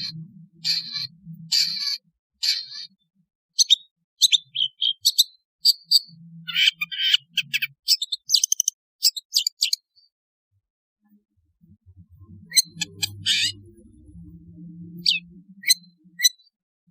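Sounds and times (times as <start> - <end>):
bird chattering and whistling: 0.0 - 3.0, 3.6 - 9.9, 12.4 - 13.7, 15.0 - 16.5.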